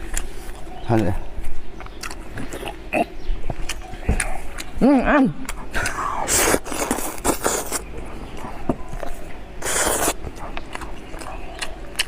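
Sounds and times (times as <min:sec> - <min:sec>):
crunching food: 0:01.7 - 0:04.8, 0:05.4 - 0:12.0.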